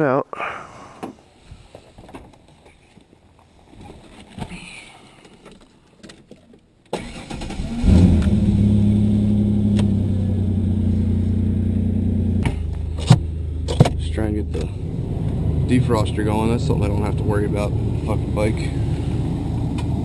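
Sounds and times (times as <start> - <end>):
pickup engine starting and idling: 6.9 - 20.0.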